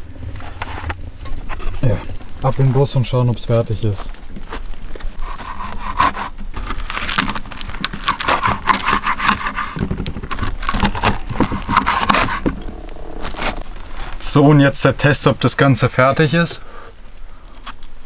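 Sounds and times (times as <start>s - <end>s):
knife sawing through crust: 5.2s - 13.6s.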